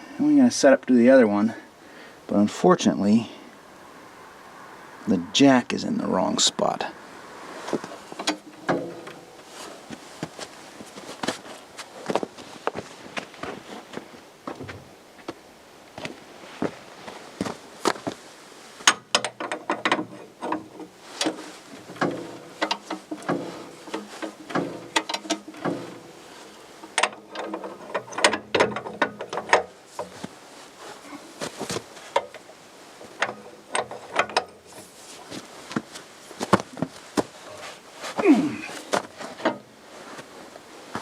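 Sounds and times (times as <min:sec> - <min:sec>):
metal tools clanking: 0:07.7 - 0:09.6, 0:19.1 - 0:30.2.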